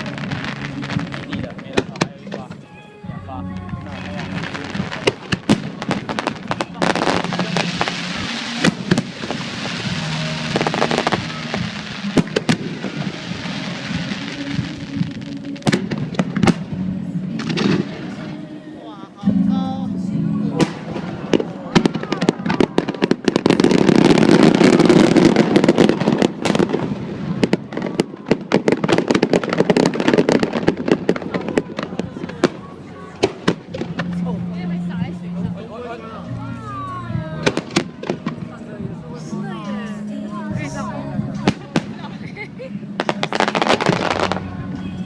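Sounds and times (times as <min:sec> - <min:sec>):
fireworks bangs: 0:00.0 - 0:02.7, 0:03.7 - 0:18.6, 0:20.5 - 0:35.1, 0:37.2 - 0:39.0, 0:43.0 - 0:45.0
fireworks crackle: 0:00.0 - 0:02.7, 0:03.6 - 0:19.4, 0:20.5 - 0:35.0, 0:36.7 - 0:45.0
music playing: 0:00.0 - 0:45.0.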